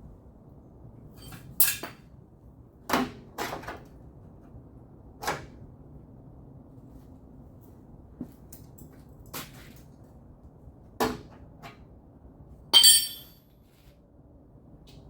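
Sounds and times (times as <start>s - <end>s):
metal clank ringing: 12.8s - 13.4s.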